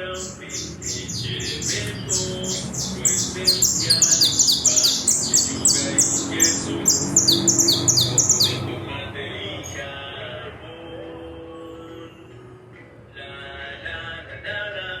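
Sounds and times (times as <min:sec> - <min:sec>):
finch singing: 0:00.0 - 0:08.9, 0:09.6 - 0:09.8.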